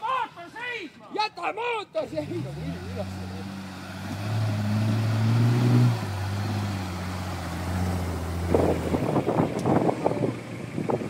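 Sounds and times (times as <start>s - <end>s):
bystanders shouting: 0.0s - 4.2s
engine low drone: 2.2s - 11.0s
wind gusts on microphone: 7.6s - 11.0s.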